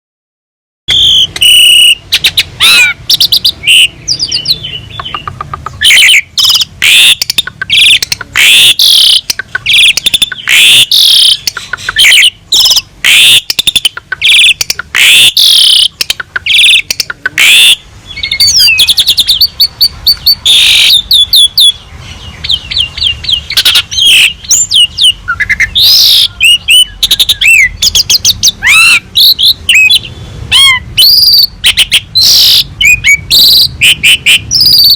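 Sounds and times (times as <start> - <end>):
starling singing: 0.9 - 34.9.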